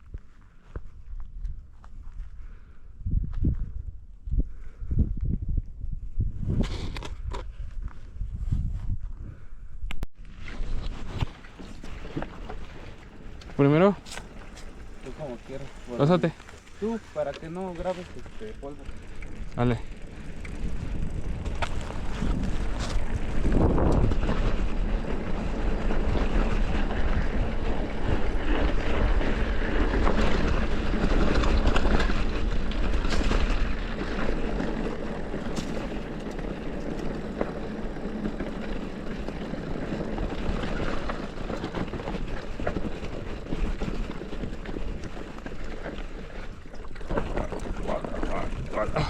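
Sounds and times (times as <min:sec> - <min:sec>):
wind buffeting microphone: 0:00.9 - 0:10.0, 0:10.7 - 0:49.0
bike knocks and rattles: 0:10.7 - 0:49.0.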